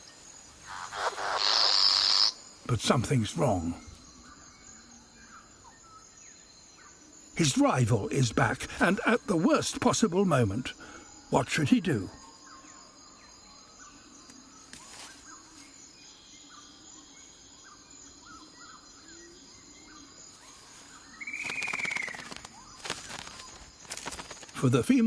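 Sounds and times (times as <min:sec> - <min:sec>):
rainforest ambience: 0:00.0 - 0:25.0
small bird chirps: 0:00.7 - 0:02.4
rustling: 0:20.6 - 0:24.6
rising and falling bird call: 0:21.1 - 0:23.6.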